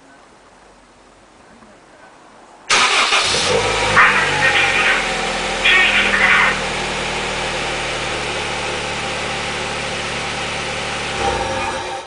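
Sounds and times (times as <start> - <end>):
car engine idling: 2.7 - 12.0.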